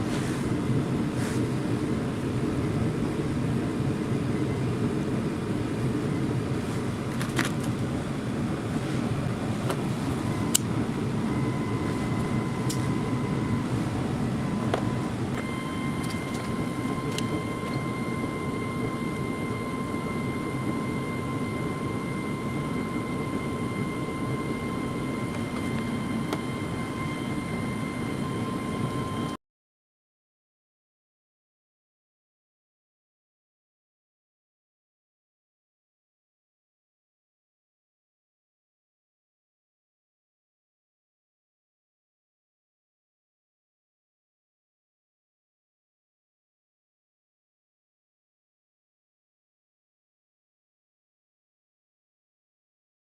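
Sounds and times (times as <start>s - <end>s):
machine low rush: 0.0s - 28.8s
thin whine: 0.0s - 29.4s.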